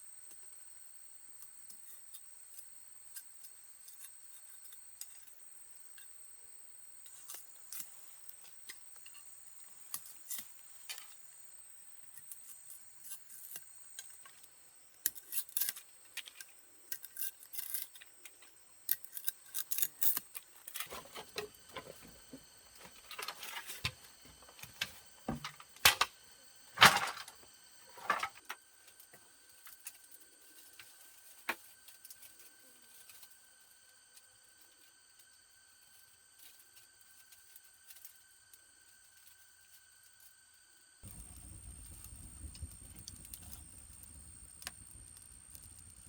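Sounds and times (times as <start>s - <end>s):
objects being handled: 15.0s - 29.0s.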